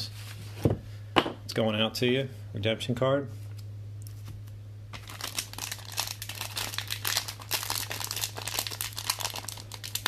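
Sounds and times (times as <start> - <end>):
low electrical hum: 0.0 - 10.0
plastic packaging crinkling: 5.0 - 10.0.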